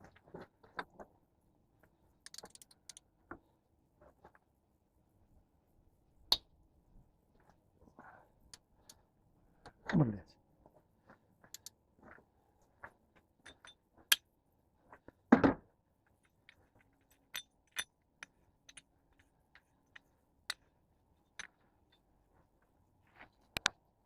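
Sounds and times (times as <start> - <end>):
hand tools clinking on metal: 13.4 - 13.8.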